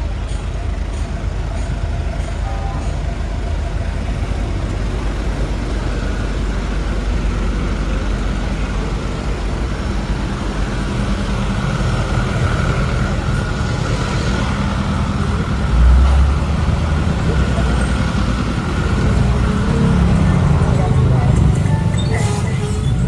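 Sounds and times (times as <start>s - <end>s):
road noise: 0.0s - 23.0s
street traffic: 0.0s - 23.0s.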